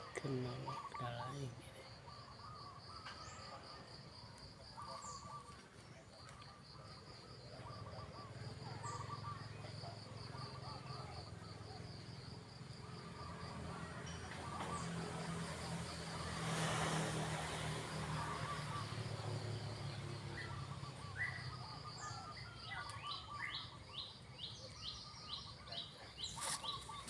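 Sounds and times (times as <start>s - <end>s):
insects trilling: 0.0s - 27.0s.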